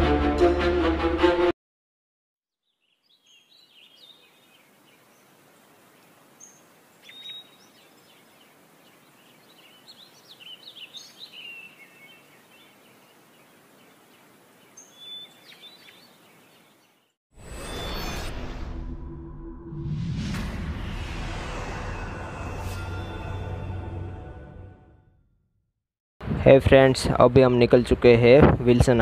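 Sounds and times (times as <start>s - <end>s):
small birds chirping and trilling: 2.6s - 17.2s
faint outdoor hiss: 2.8s - 17.1s.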